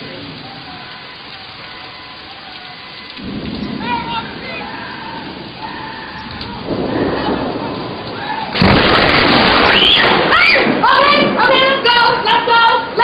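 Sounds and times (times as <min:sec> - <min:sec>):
rain falling: 0:00.0 - 0:13.0
thunder rumbling: 0:00.0 - 0:13.0
loud thunderclap: 0:03.2 - 0:11.9.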